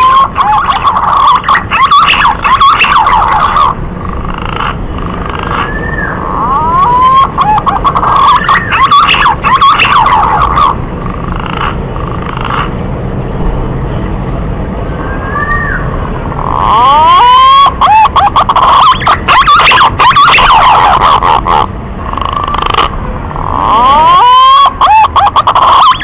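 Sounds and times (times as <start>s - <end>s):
pigeon whistling song: 5.4s - 10.7s.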